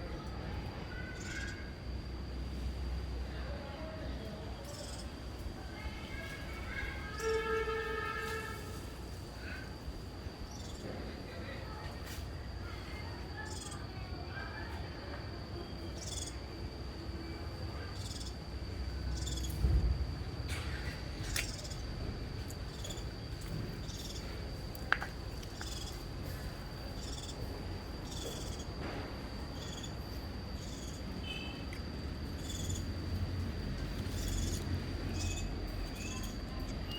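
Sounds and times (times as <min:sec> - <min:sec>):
insects high-pitched tone: 0:00.0 - 0:36.9
short high insect chirps: 0:04.7 - 0:05.2, 0:10.5 - 0:10.8, 0:13.4 - 0:13.9, 0:15.8 - 0:16.5, 0:17.8 - 0:19.9, 0:21.2 - 0:21.9, 0:22.6 - 0:24.4, 0:25.5 - 0:26.1, 0:26.9 - 0:27.4, 0:28.0 - 0:28.8, 0:29.5 - 0:33.2, 0:33.9 - 0:36.9.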